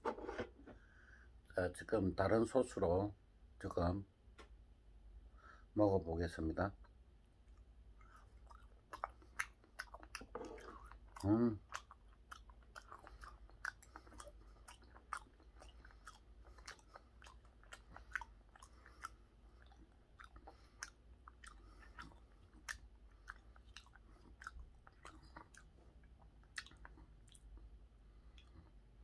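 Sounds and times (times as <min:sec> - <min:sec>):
wet chewing: 0:07.4 - 0:28.8.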